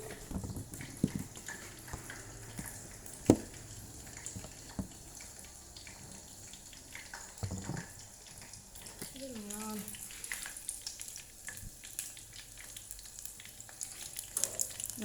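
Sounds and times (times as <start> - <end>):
shrimp frying in oil: 0.0 - 15.0
sharp knocks: 3.3 - 3.5.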